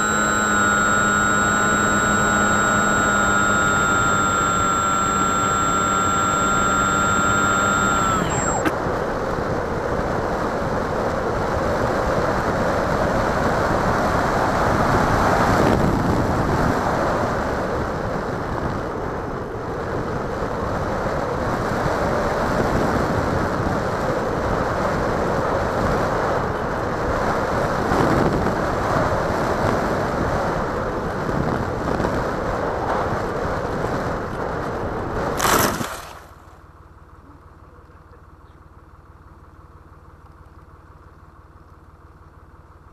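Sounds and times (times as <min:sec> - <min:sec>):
model plane motor whining: 0:00.0 - 0:08.8.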